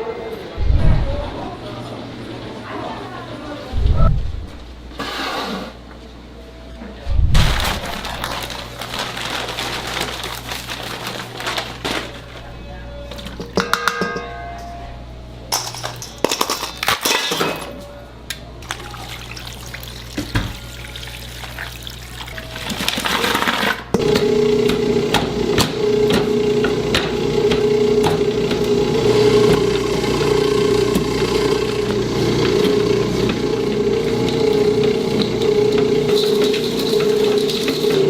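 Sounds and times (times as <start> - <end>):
machine hum: 0.0 - 4.9, 22.3 - 38.0.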